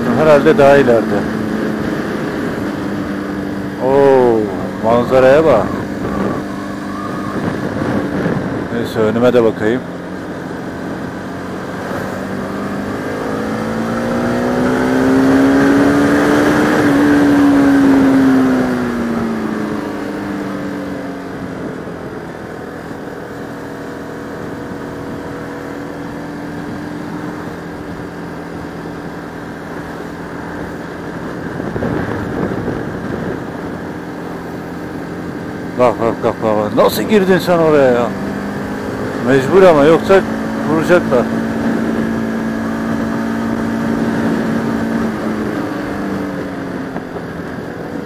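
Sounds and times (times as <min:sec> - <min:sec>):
motorcycle engine: 0:00.0 - 0:48.0
wind rushing: 0:05.4 - 0:08.8, 0:30.2 - 0:35.8.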